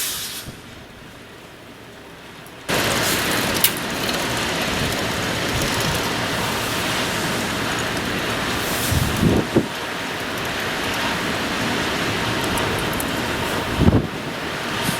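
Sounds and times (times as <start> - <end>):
wind buffeting microphone: 3.9 - 14.9.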